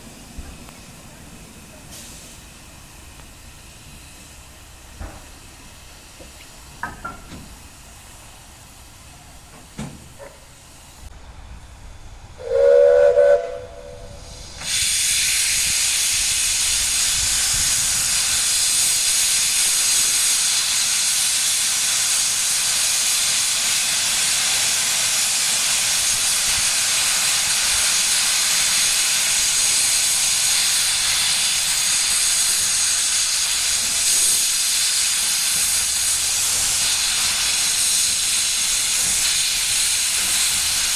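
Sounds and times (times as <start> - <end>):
hiss of escaping steam: 0.0 - 11.1, 12.4 - 40.9
steam locomotive whistle: 12.4 - 15.4.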